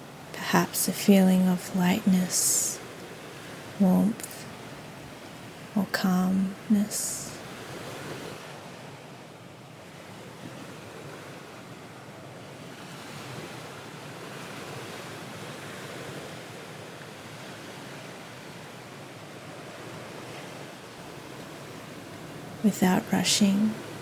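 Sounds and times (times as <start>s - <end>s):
ocean waves on shore: 0.0s - 24.0s.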